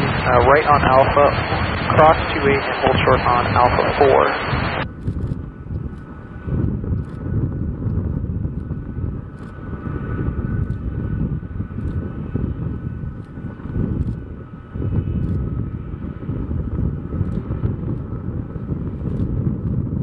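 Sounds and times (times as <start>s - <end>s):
jet engines whining: 0.0s - 6.6s
low engine rumble: 0.0s - 6.8s.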